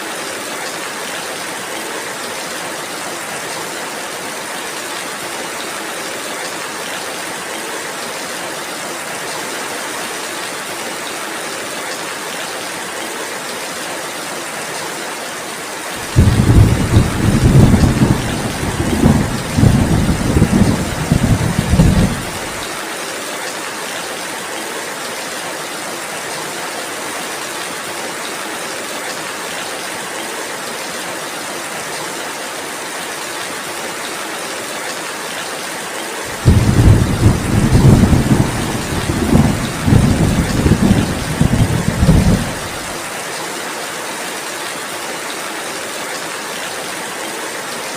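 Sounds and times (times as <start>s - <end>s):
steady rain hissing: 0.0s - 47.9s
low roll of thunder: 16.0s - 22.6s, 36.4s - 42.9s.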